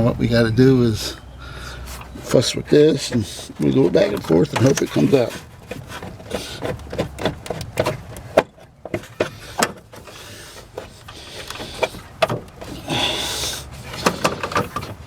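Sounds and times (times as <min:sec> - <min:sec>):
scraping rub: 0:01.6 - 0:15.0
clicks and knocks of car part: 0:03.1 - 0:12.9, 0:13.8 - 0:15.0.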